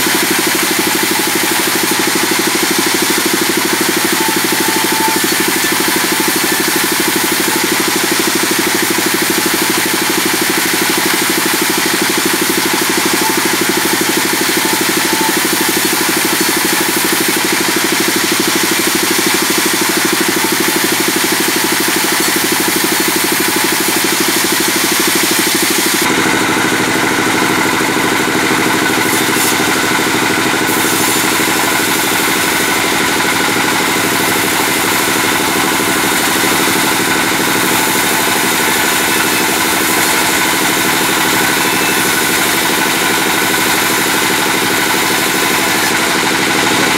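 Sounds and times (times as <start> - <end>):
bandsaw sawing hardwood: 0.0 - 46.9.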